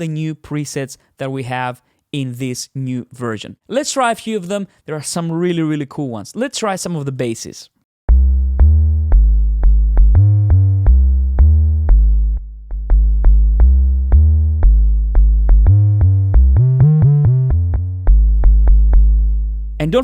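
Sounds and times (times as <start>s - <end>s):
synth bass notes: 8.1s - 20.0s.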